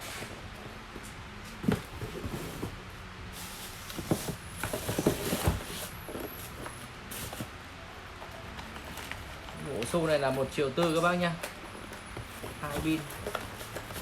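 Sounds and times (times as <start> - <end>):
clattering and rustling packaging: 0.0 - 14.0.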